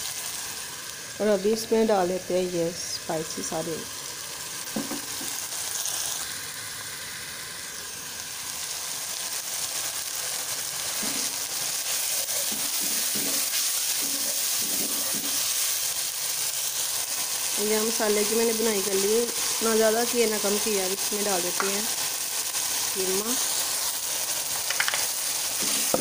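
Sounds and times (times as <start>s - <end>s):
masala sizzling in a pan: 0.0s - 26.0s
wooden spoon stirring: 25.6s - 26.0s.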